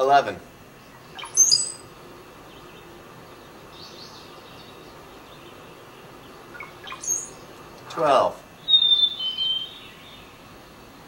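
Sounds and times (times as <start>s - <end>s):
steady background hiss: 0.0s - 11.0s
faint bird chirps: 0.7s - 11.0s
short sharp bird calls: 1.0s - 1.9s, 6.5s - 7.5s, 8.6s - 10.3s.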